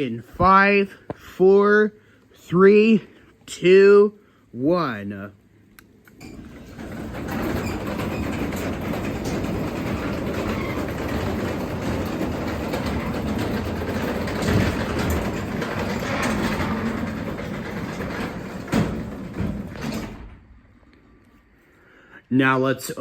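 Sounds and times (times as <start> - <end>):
garage door opener running: 6.1 - 20.7
door rollers rattling: 6.2 - 20.7.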